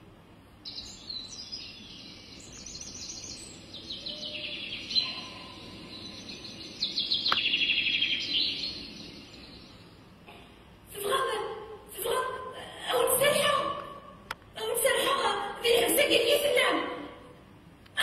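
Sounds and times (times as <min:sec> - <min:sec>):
bird chirps and trills: 0:00.6 - 0:10.1.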